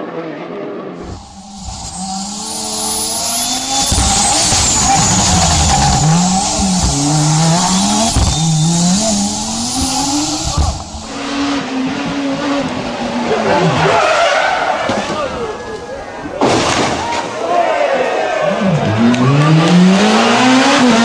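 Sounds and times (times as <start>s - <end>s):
tyres on loose surface: 1.0s - 11.4s
rally car engine shifting gears: 1.0s - 15.5s, 18.6s - 21.0s
heavy low thumps: 3.6s - 11.5s.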